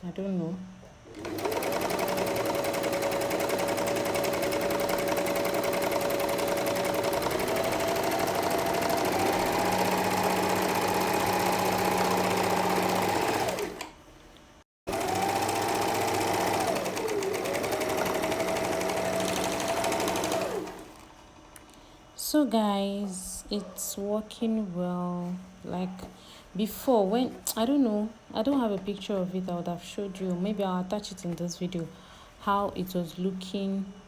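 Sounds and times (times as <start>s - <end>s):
overlock sewing machine running: 1.1s - 14.0s, 14.9s - 21.1s.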